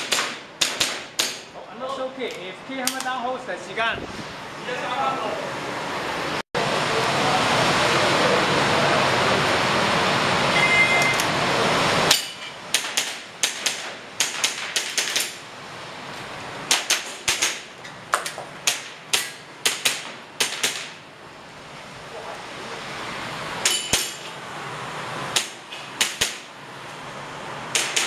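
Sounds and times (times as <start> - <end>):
airsoft pistol shots: 0.0 - 1.5, 12.7 - 15.4, 16.7 - 17.7, 18.6 - 21.0, 27.7 - 28.0
short electronic beep: 10.5 - 11.3.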